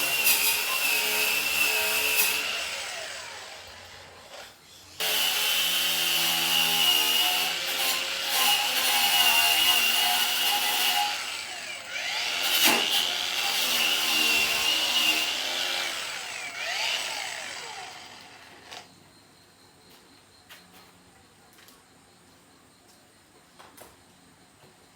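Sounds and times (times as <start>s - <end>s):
power tool grinding with high whine: 0.0s - 18.9s.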